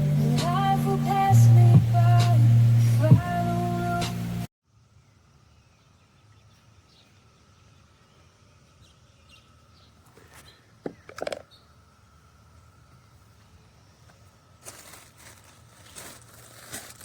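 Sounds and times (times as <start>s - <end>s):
faint bird chirps: 4.8s - 14.1s.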